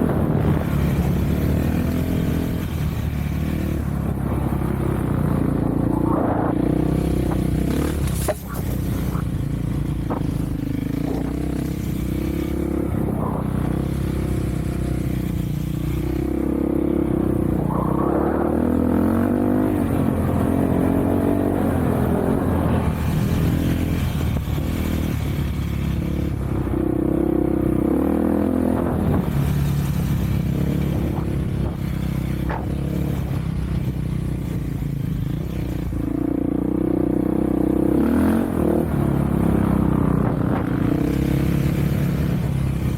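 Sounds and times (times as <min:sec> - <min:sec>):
off-road vehicle engine revving: 0:15.9 - 0:34.5, 0:36.0 - 0:42.9.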